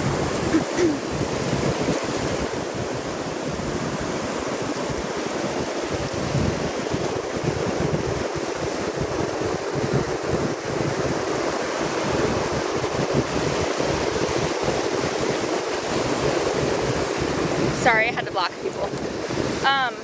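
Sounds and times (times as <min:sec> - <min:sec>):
ocean surf washing on shore: 0:00.0 - 0:20.0
wind buffeting microphone: 0:00.0 - 0:20.0.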